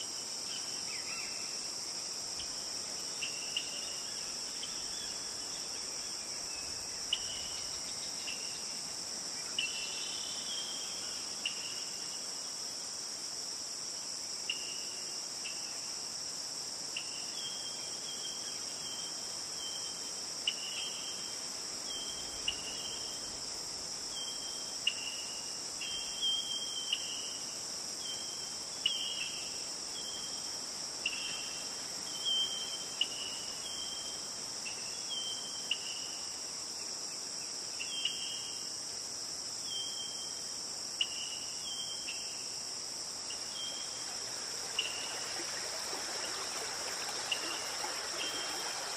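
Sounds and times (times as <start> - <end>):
high-pitched insect chorus: 0.0 - 48.9
short insect chirps: 39.6 - 48.9.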